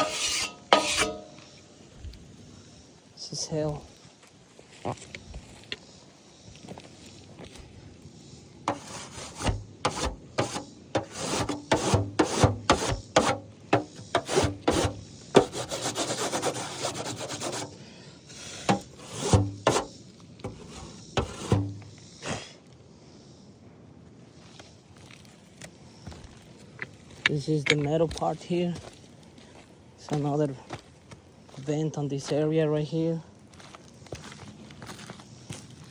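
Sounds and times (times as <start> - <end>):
scraping on shingle roof: 0.0 - 1.4, 8.7 - 17.8, 18.4 - 21.9
steady rasp: 0.0 - 1.4, 8.7 - 17.8, 18.4 - 21.9.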